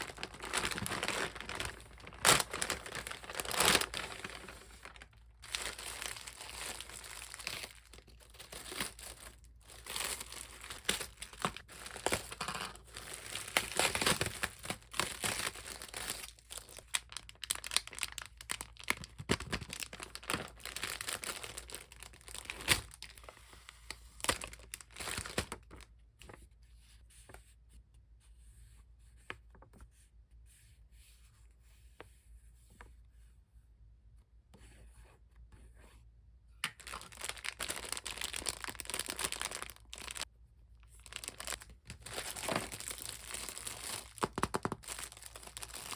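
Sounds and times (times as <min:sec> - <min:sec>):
packaging crinkling and tearing: 0:00.0 - 0:25.8, 0:36.7 - 0:40.3, 0:40.9 - 0:45.9.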